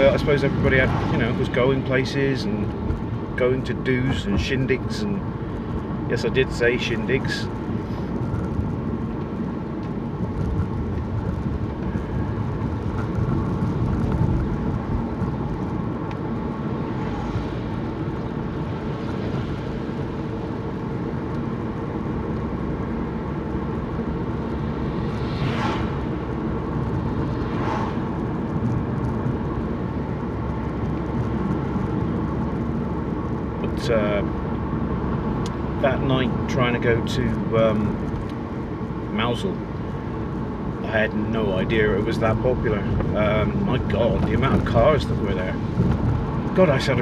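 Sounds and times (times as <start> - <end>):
road and engine noise inside car: 0.0 - 47.0
brief whooshes: 24.7 - 28.4.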